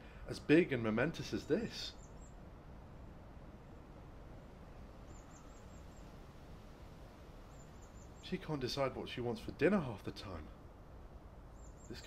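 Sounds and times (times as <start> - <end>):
faint outdoor ambience: 0.0 - 12.0
small bird high calls: 1.2 - 2.5, 4.8 - 6.4, 7.4 - 8.4, 11.4 - 12.0.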